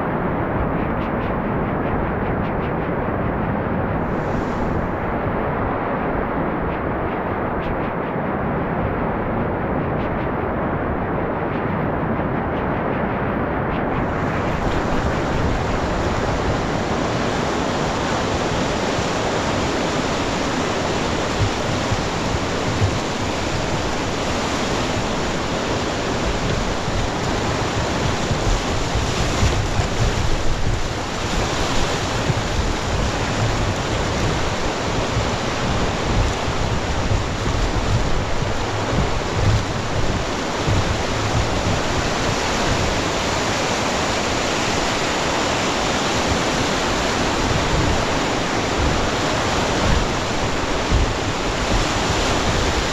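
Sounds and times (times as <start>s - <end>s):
wind buffeting microphone: 0.0s - 52.9s
river water rushing: 4.0s - 7.0s, 14.0s - 52.9s.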